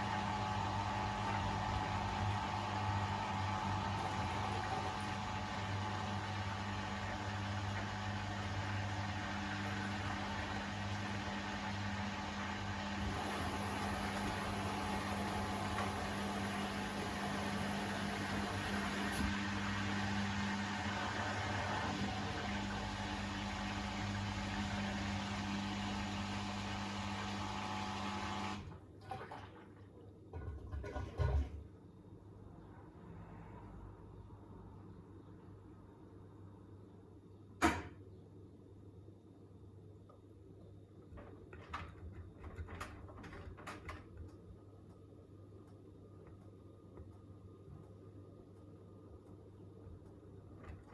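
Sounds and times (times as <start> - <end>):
washing machine motor humming: 0.0 - 29.9, 41.1 - 50.9.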